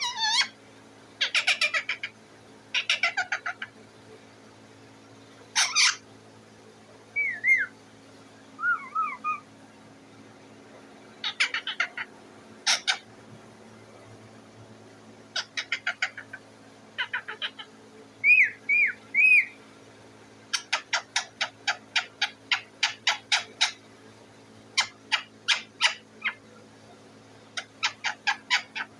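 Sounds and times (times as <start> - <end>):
parrot chattering: 0.0 - 0.6, 1.2 - 2.1, 2.7 - 3.8, 5.6 - 6.0, 7.2 - 7.7, 8.6 - 9.4, 11.2 - 13.1, 15.3 - 16.4, 17.0 - 19.6, 20.5 - 23.8, 24.8 - 26.4, 27.6 - 28.9
parrot whistling: 5.6 - 6.0, 7.2 - 7.7, 8.6 - 9.4, 18.2 - 19.6.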